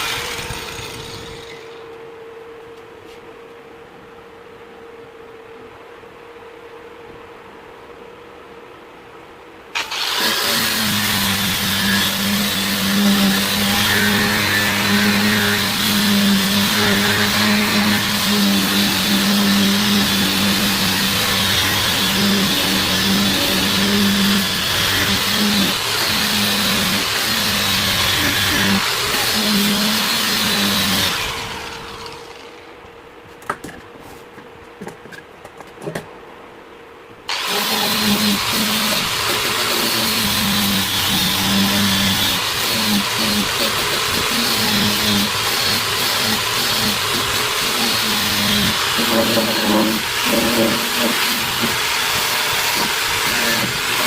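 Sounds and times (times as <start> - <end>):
power tool motor hum and hiss: 9.8 - 32.6, 37.3 - 54.0.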